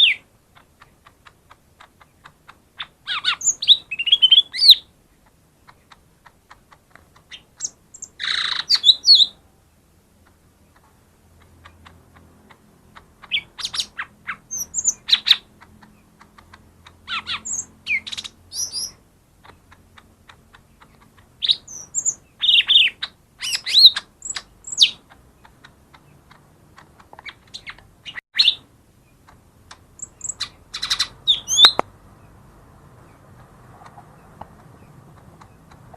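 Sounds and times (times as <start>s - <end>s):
leafbird singing whistled notes: 0.0s - 0.3s, 2.8s - 4.9s, 7.3s - 9.4s, 13.2s - 16.1s, 17.0s - 19.0s, 20.8s - 25.0s, 27.2s - 29.2s, 30.0s - 31.8s.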